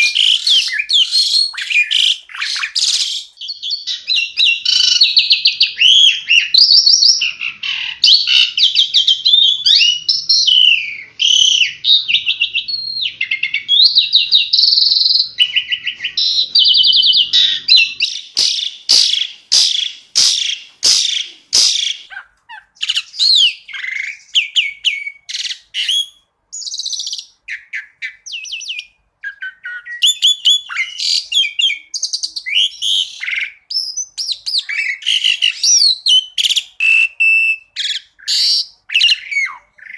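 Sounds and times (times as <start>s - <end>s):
starling singing: 0.0s - 39.9s
sharp clicking bird notes: 17.5s - 22.2s.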